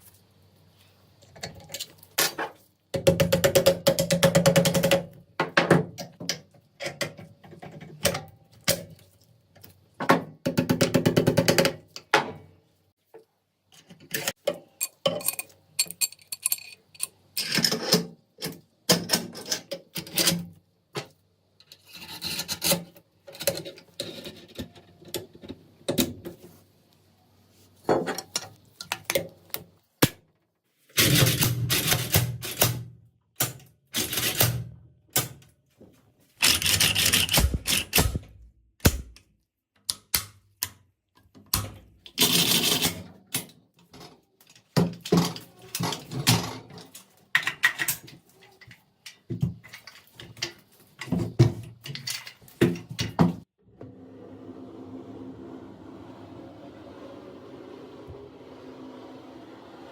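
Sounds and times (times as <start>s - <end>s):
rifle parts clicking and rattling: 13.8s - 18.6s, 36.4s - 38.2s.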